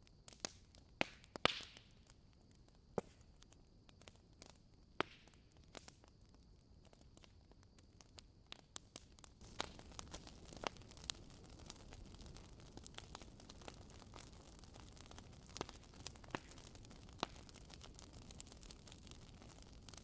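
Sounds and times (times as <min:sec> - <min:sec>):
wood fire crackling: 0:00.2 - 0:20.0.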